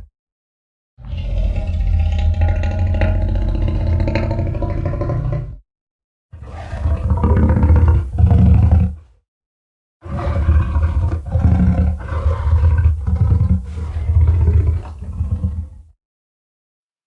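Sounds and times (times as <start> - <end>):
deep creature roar: 1.0 - 5.6, 6.4 - 9.0, 10.0 - 15.6.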